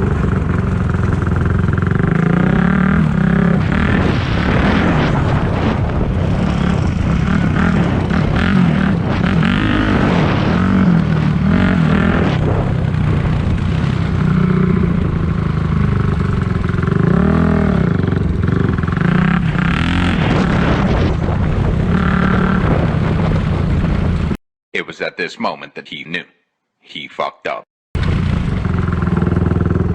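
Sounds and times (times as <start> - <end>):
dirt bike engine revving: 0.0 - 24.2, 28.0 - 29.9.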